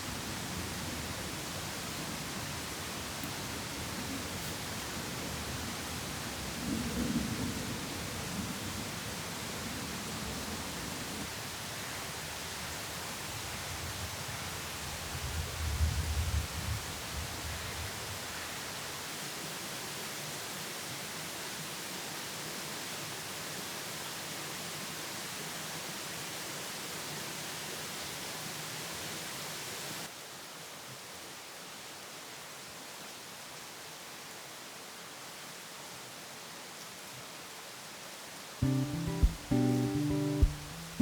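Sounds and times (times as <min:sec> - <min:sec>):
ambient hiss: 0:38.6 - 0:41.0.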